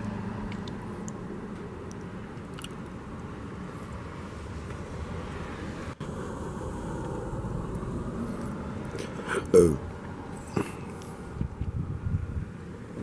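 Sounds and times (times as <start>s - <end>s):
steady low rumble with hiss: 0.0s - 13.0s.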